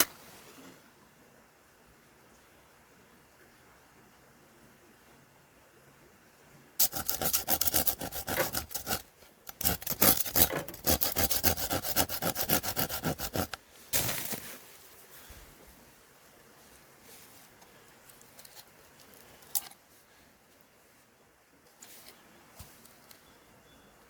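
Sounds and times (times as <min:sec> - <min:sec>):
rasping strokes on wood: 0:06.8 - 0:13.6.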